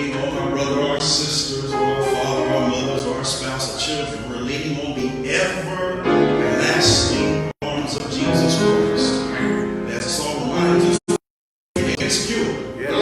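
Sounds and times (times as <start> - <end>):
church singing with held notes: 0.0 - 11.0
instrumental accompaniment: 1.6 - 3.7.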